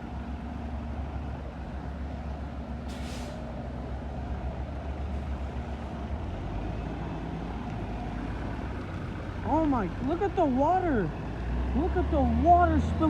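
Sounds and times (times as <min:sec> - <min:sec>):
bus diesel engine rumbling: 0:00.0 - 0:13.0
air brakes hissing: 0:02.9 - 0:03.5.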